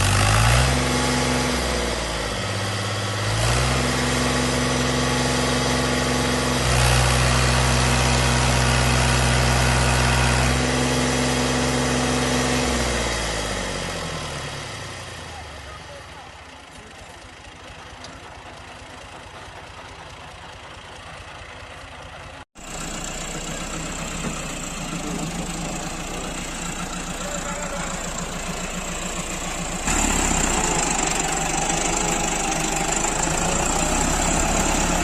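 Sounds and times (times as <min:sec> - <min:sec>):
heavy farm machine engine running: 0:00.0 - 0:35.0.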